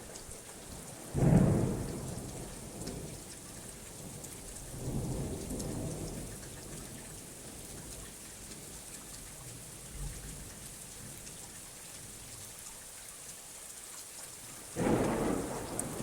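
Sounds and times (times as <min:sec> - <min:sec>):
steady rainfall: 0:00.0 - 0:16.0
thunder cracking and rumbling: 0:14.8 - 0:16.0.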